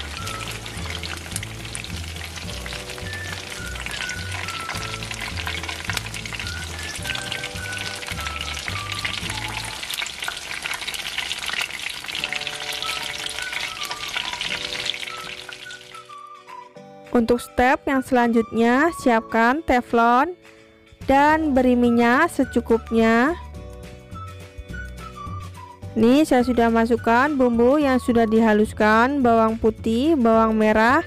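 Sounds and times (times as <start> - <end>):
food deep-frying in oil: 0.0 - 16.4
background music: 0.0 - 31.0.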